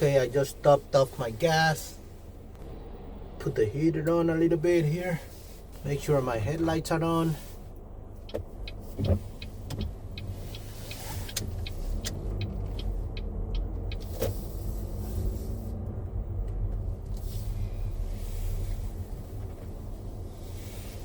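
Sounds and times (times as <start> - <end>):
car engine idling: 0.0 - 21.0
sharp ticks: 8.2 - 14.1.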